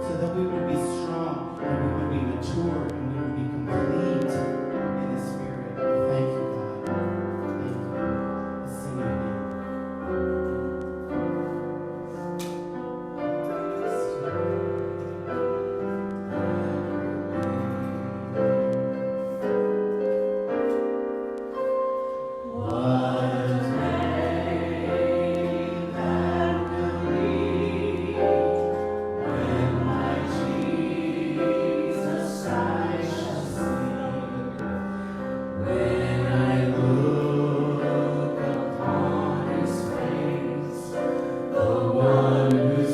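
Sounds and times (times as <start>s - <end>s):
piano chords: 0.0s - 42.9s
group of voices singing: 22.4s - 42.9s.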